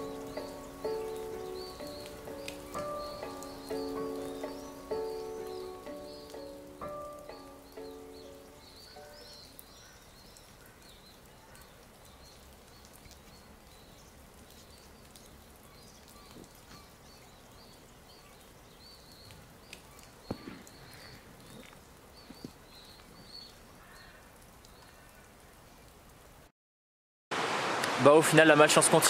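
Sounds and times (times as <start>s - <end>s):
small birds chirping: 0.0s - 26.0s
soft steady hiss: 0.0s - 26.5s.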